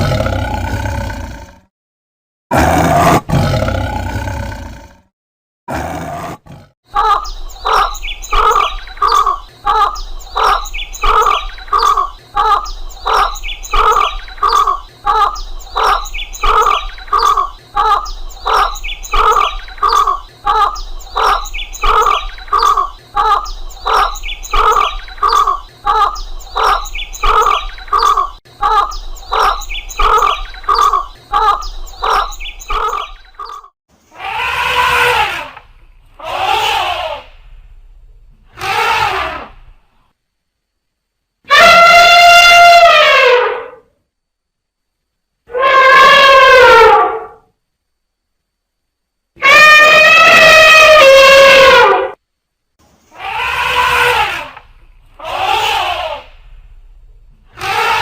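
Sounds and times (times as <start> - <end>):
animal calling: 5.7 - 37.4, 38.5 - 39.6, 41.4 - 43.9, 45.5 - 47.4, 49.4 - 52.2, 53.1 - 56.5, 57.5 - 58.0.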